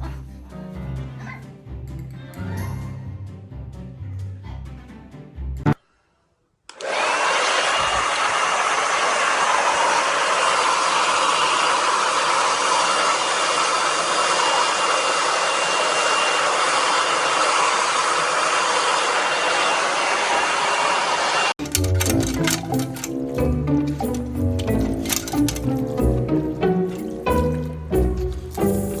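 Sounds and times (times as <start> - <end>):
electric motor rushing air: 6.7 - 23.1.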